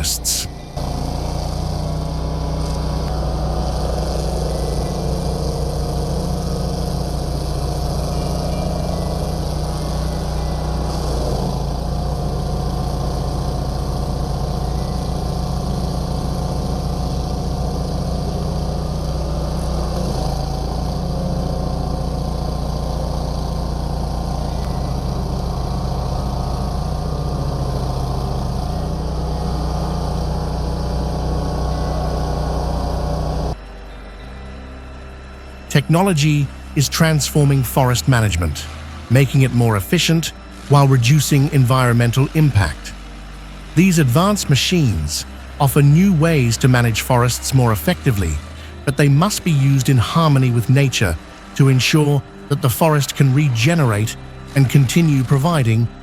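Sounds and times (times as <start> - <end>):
heavy machine engine humming: 0.0 - 56.0.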